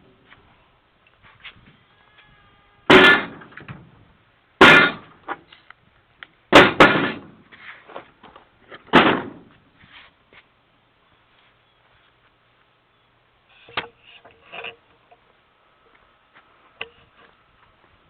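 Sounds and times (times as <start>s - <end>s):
loud ringing clangs: 2.9s - 3.6s.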